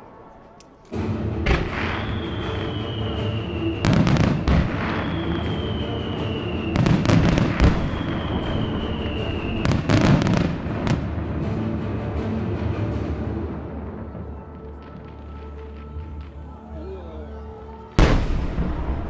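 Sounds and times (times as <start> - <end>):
show music: 0.0 - 19.0
fireworks bursting: 0.2 - 11.2, 18.0 - 19.0.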